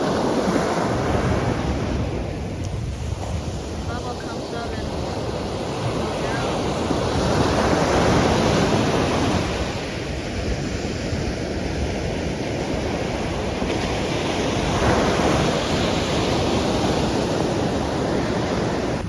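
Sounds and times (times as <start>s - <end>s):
sea waves washing ashore: 0.0s - 19.0s
wind buffeting microphone: 0.0s - 19.0s.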